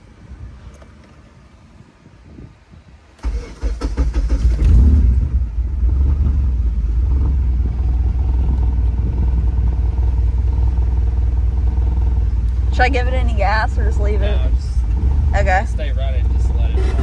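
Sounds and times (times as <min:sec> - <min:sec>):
starter motor cranking: 0:03.2 - 0:05.5
car engine revving and idling: 0:03.2 - 0:17.0.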